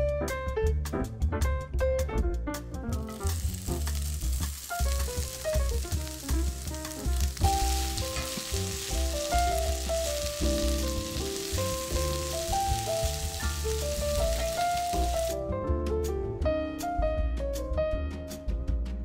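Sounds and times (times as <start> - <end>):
background music with bass: 0.0 - 19.0
peppers sizzling in hot oil: 3.0 - 15.4.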